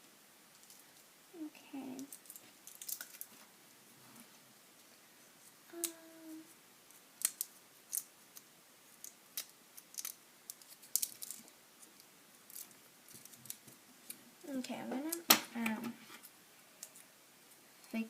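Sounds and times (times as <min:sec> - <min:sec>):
plastic straws clicking and snipping: 0:02.0 - 0:03.3, 0:06.9 - 0:14.2.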